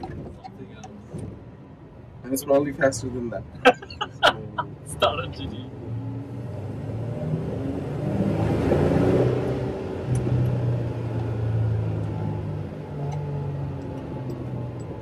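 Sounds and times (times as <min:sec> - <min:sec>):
car engine accelerating: 0:04.0 - 0:15.0.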